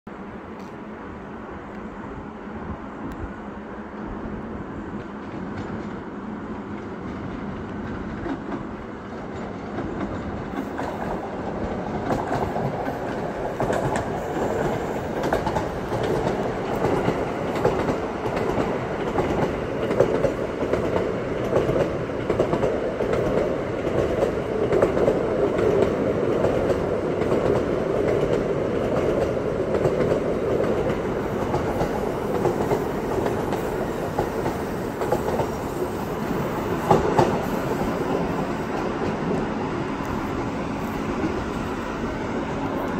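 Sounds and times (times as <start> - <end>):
train wheels rumbling on rail: 0.1 - 42.9
wheels clicking over rail joints: 6.6 - 40.2.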